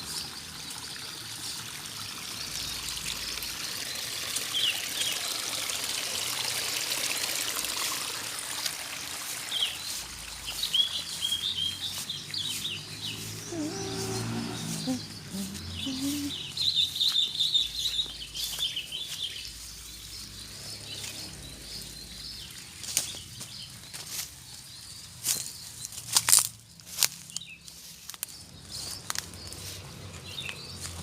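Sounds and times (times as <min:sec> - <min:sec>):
water trickling: 0:00.0 - 0:23.9
small birds chirping: 0:08.6 - 0:31.0.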